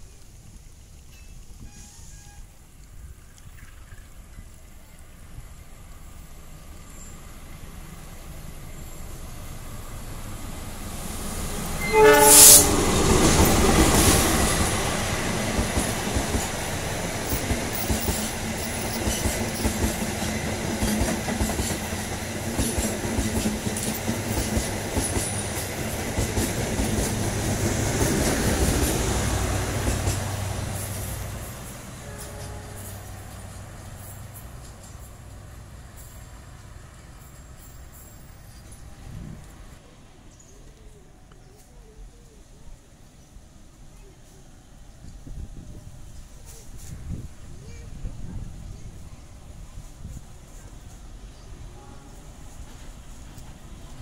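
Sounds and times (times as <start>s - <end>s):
passenger train passing: 4.1s - 54.0s
locomotive horn blast: 11.6s - 13.0s, 32.0s - 33.3s, 51.7s - 52.6s
wheels clicking over rail joints: 11.6s - 39.8s.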